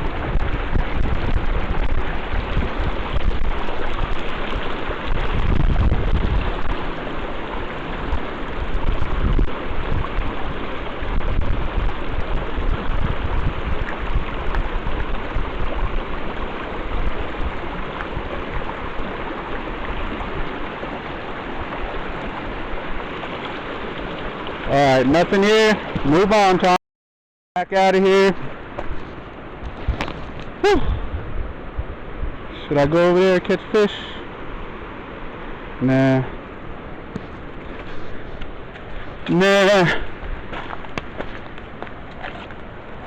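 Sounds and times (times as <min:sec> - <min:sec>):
wind gusting on microphone: 0:00.0 - 0:23.2, 0:28.3 - 0:33.1
river water rushing: 0:00.0 - 0:26.8, 0:27.7 - 0:43.0.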